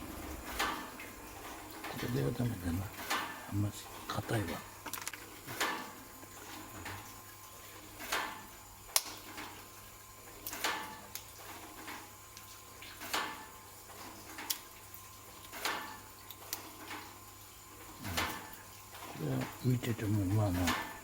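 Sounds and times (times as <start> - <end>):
nuts sliding and rattling: 4.8 - 5.3.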